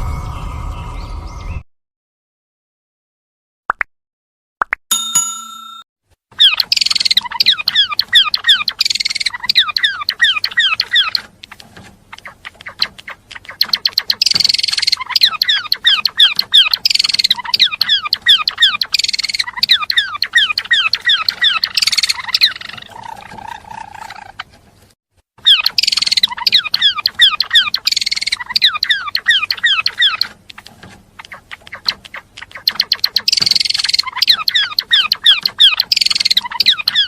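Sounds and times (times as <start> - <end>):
bird chirping song: 0.0 - 1.6, 6.4 - 24.6, 25.4 - 37.0.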